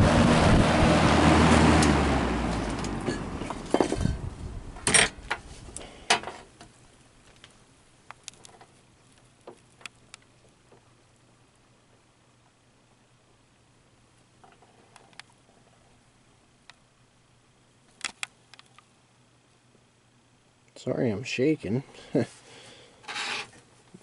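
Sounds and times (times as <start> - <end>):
box fan motor hum: 0.0 - 11.5
faint scattered ticks: 6.5 - 12.6, 14.1 - 16.9.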